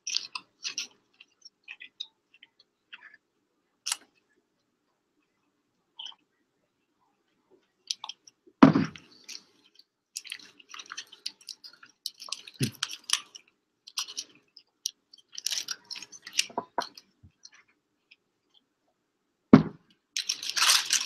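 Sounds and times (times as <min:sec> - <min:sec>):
loud thump: 0:08.6 - 0:09.0, 0:19.6 - 0:19.8
wet chewing and biting: 0:08.9 - 0:18.2
foil wrapper crinkling: 0:15.2 - 0:17.0, 0:20.2 - 0:21.0.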